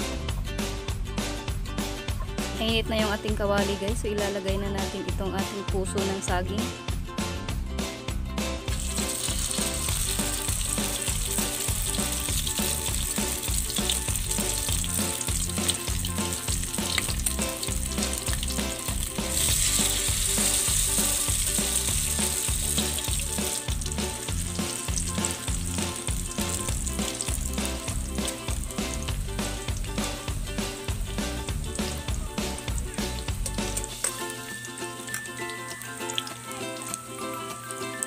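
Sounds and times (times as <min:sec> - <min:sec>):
batter sizzling in hot oil: 0:08.7 - 0:38.0.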